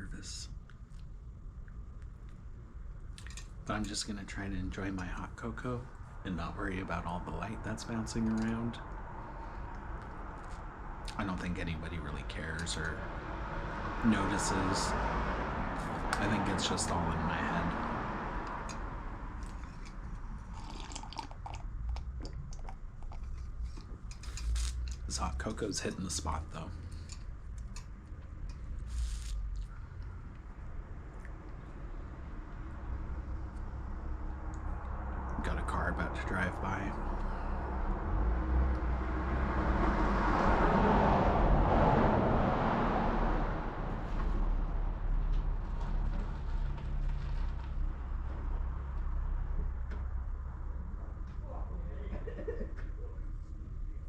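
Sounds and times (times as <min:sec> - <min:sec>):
low steady hum: 0:00.0 - 0:54.0
car driving past: 0:07.0 - 0:21.1, 0:28.3 - 0:51.8
person sipping hot drink: 0:19.4 - 0:25.1, 0:28.8 - 0:29.8
mouth clicks and smacks: 0:20.5 - 0:25.1.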